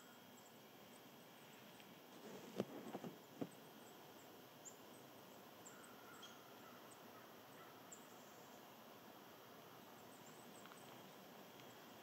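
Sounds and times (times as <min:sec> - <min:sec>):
short rustle: 0:01.5 - 0:03.5
faint high bird chirps: 0:02.8 - 0:08.7.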